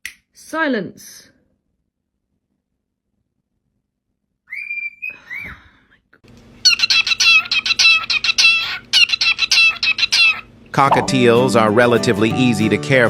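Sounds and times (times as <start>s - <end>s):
cockatiel shrill calls: 4.5s - 5.6s, 6.6s - 10.5s
cockatiel whistles: 4.5s - 5.7s.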